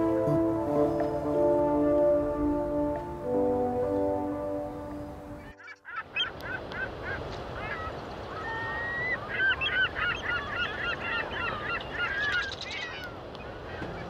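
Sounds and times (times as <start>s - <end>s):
background hiss: 0.0s - 5.6s
birds chirping: 0.0s - 14.0s.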